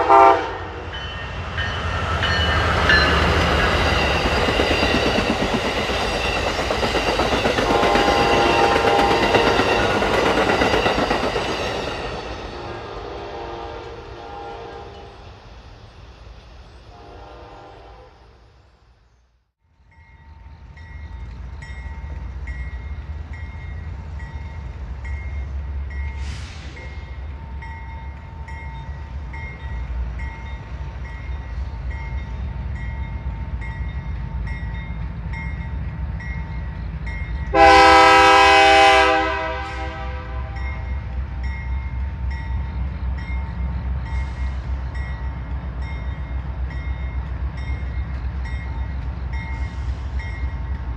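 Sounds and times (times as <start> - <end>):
locomotive horn blast: 0.0 - 1.0, 12.5 - 15.2, 16.9 - 18.5, 37.5 - 40.8
train rumbling on rails: 0.0 - 19.1, 19.7 - 50.9.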